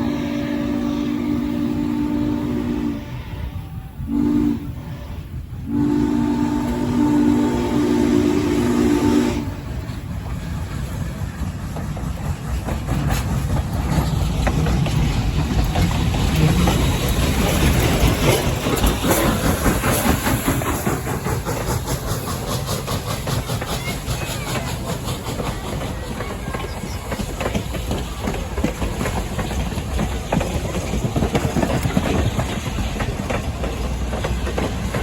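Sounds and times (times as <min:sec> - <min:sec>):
steam locomotive whistle: 0:00.0 - 0:11.0
train rumbling and clattering past: 0:00.0 - 0:35.0.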